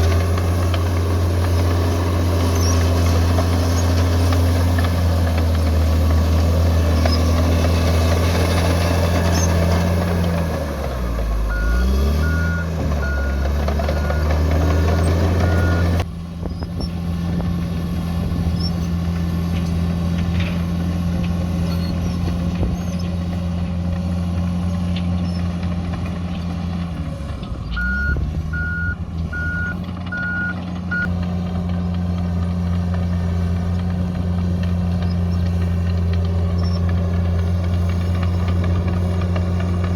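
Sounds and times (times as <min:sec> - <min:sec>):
bulldozer diesel engine running: 0:00.0 - 0:39.9
reversing alarm beeps: 0:11.5 - 0:14.4, 0:15.4 - 0:15.9, 0:27.6 - 0:31.1.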